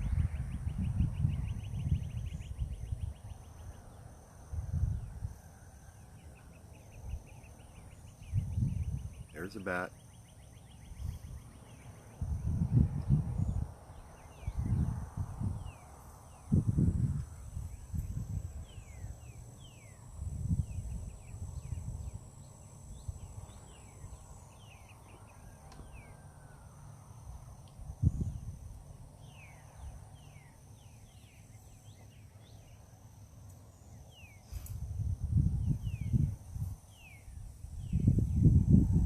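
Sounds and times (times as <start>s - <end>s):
wind buffeting microphone: 0.0s - 3.8s, 4.4s - 5.4s, 6.9s - 9.4s, 10.8s - 22.3s, 27.8s - 30.0s, 34.5s - 39.0s
faint high whine: 0.0s - 39.0s.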